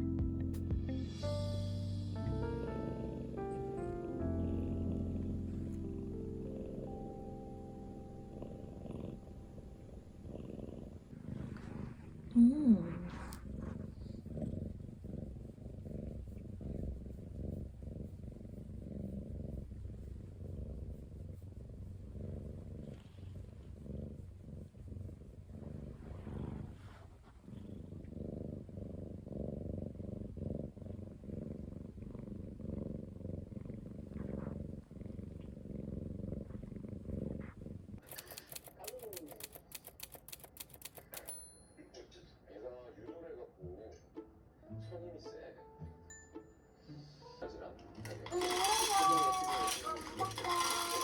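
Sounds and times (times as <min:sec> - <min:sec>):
cat purring: 0:00.0 - 0:41.5, 0:47.0 - 0:51.0
sharp clicks: 0:38.0 - 0:41.4.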